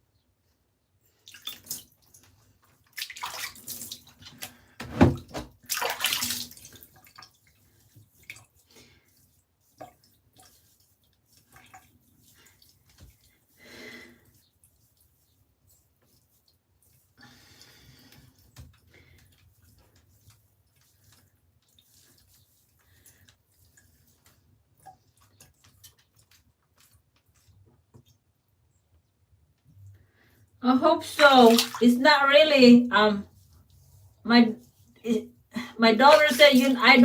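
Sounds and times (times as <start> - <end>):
water splashing in a bathtub: 1.1 - 28.4, 29.9 - 37.0
water dripping: 1.2 - 4.6, 5.6 - 8.7, 31.0 - 32.7, 35.6 - 37.0.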